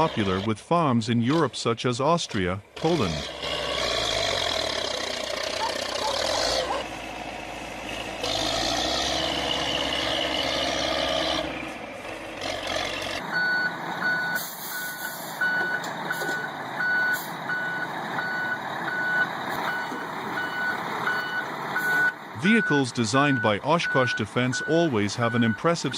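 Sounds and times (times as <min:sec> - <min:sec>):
outdoor noise: 0:00.0 - 0:25.9
heavy vehicle engine running: 0:02.3 - 0:25.9
truck reversing alarm beeping: 0:13.2 - 0:25.9.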